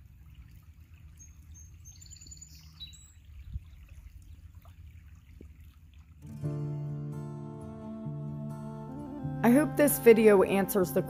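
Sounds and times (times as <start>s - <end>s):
bird chirping: 1.2s - 4.5s.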